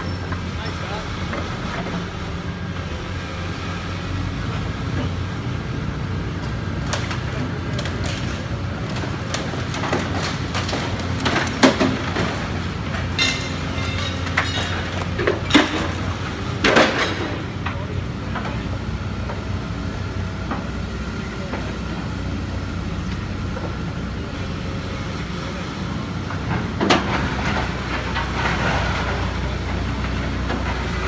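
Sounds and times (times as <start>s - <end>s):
machinery engine hum: 0.0s - 31.0s
debris clanking and crashing: 6.3s - 18.9s, 26.3s - 31.0s.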